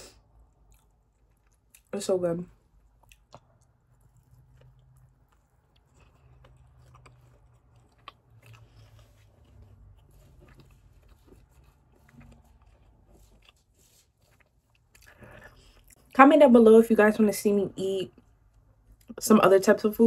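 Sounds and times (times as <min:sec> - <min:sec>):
person chewing crunchy food: 0:00.2 - 0:01.9, 0:02.6 - 0:16.0.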